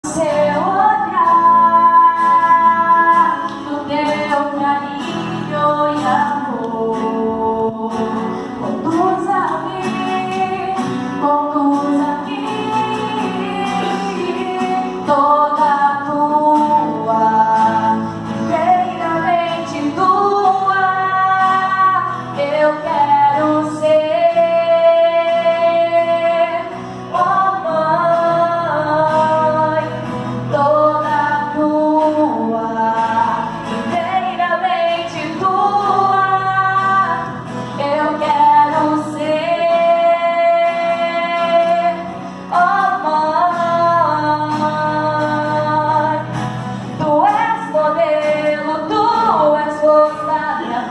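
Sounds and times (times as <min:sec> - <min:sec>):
woman singing: 0:00.0 - 0:50.9.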